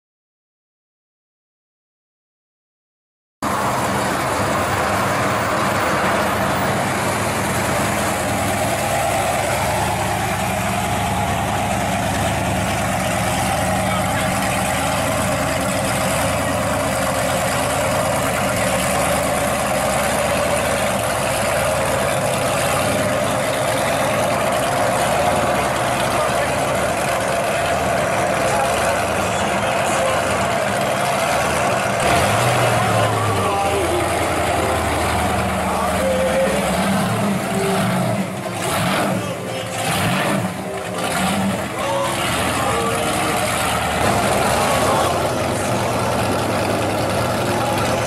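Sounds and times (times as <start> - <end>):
car engine idling: 3.4 - 48.0.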